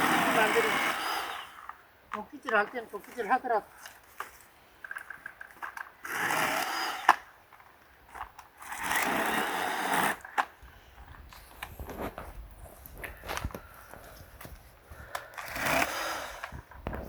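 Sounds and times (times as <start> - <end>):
electric chainsaw running: 0.0 - 1.7, 6.0 - 7.2, 8.6 - 10.3, 15.4 - 16.5.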